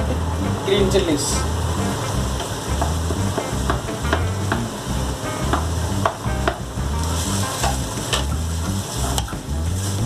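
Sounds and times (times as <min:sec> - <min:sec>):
vegetables sizzling in hot oil: 0:00.0 - 0:10.0
spatula stirring and scraping: 0:06.8 - 0:10.0.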